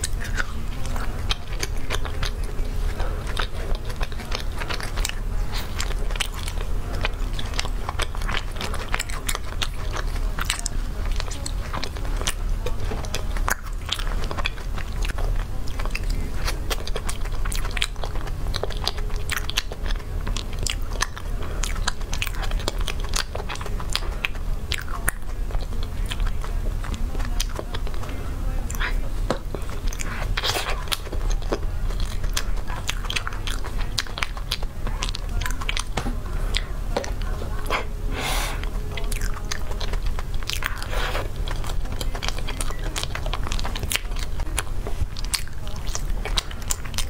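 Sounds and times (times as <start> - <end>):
person chewing soft cake: 0.0 - 47.0
steady low hum: 0.0 - 47.0.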